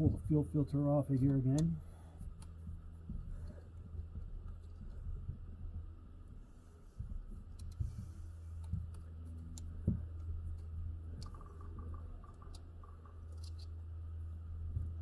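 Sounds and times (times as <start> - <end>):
steady low hum: 0.0 - 15.0
small clicks and taps of hands: 7.0 - 13.8.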